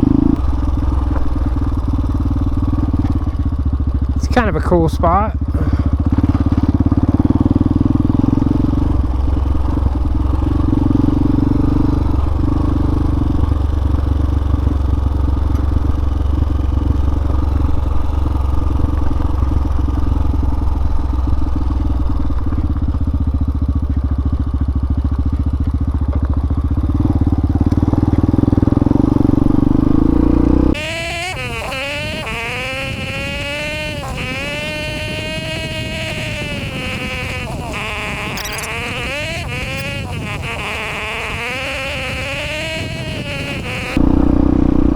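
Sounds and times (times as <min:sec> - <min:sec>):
motorcycle engine running: 0:00.0 - 0:44.9
wind and road rumble: 0:00.0 - 0:44.9
high-pitched wavering buzz: 0:30.7 - 0:44.4.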